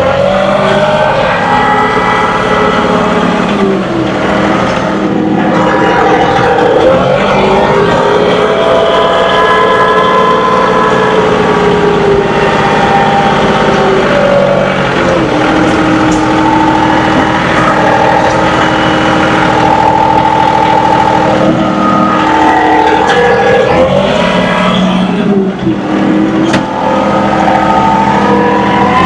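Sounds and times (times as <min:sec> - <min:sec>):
tractor diesel engine whining: 0:00.0 - 0:29.0.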